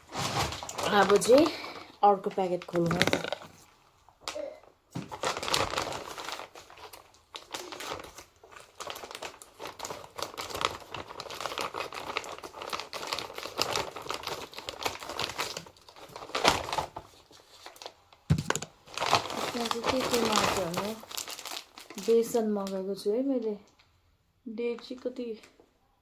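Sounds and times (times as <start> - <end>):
packaging crinkling and rustling: 0.0 - 22.9.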